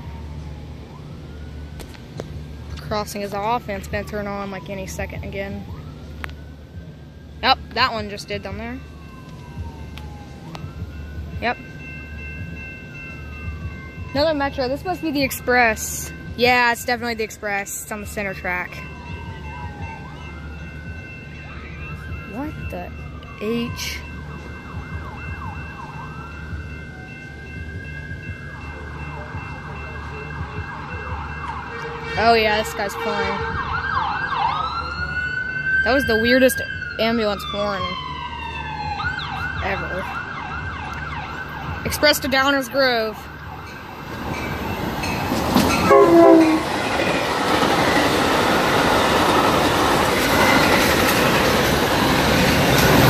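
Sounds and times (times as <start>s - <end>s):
ambulance siren: 0.0s - 53.0s
train horn blast: 31.7s - 33.6s, 45.8s - 46.8s
train wheels rushing on rails: 43.1s - 53.0s.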